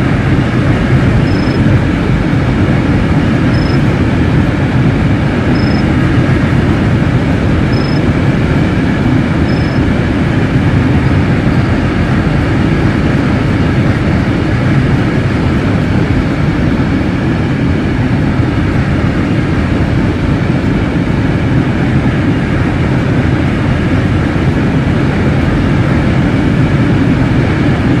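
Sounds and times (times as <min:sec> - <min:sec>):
train wheels rumbling on rail: 0:00.0 - 0:28.0
high wheel squeaks: 0:01.2 - 0:01.7, 0:09.4 - 0:09.9.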